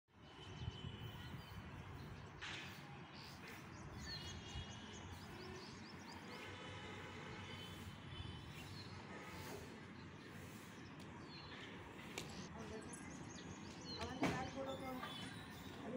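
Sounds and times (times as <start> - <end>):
faint birds chirping: 0.2 - 15.9.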